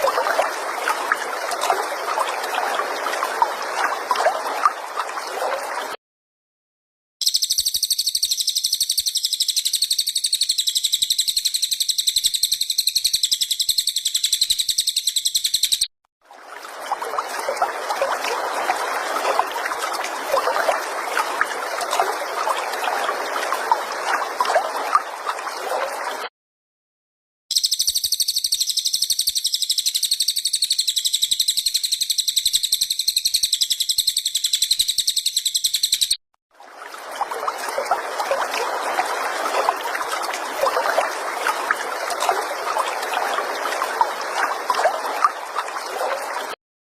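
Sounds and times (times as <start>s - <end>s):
songbird buzzing trill: 7.2s - 15.8s, 27.5s - 36.2s.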